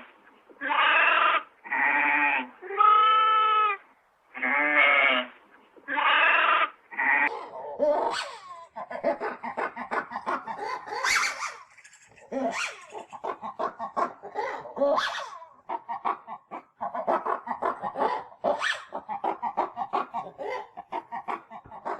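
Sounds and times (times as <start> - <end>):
chickens clucking: 7.3 - 21.9.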